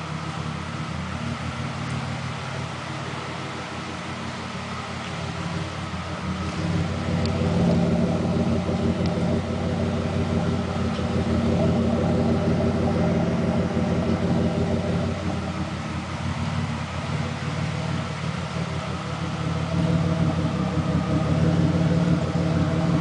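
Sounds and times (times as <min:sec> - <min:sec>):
car engine running: 0:00.0 - 0:23.0.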